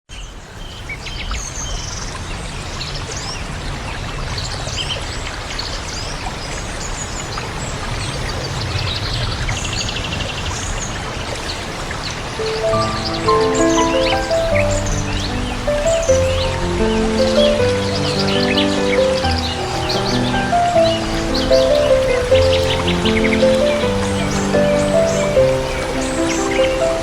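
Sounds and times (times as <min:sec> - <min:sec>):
stream water running: 0:00.8 - 0:27.0
buzzy bird trill: 0:12.4 - 0:27.0
small birds chirping: 0:12.4 - 0:27.0.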